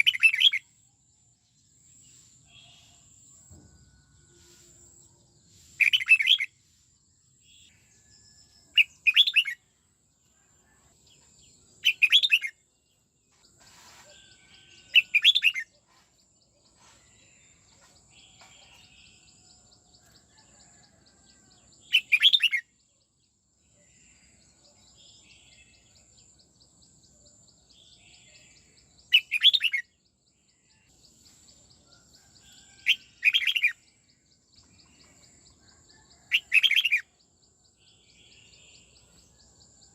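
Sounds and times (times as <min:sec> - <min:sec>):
bird singing song phrases: 0:00.0 - 0:39.9.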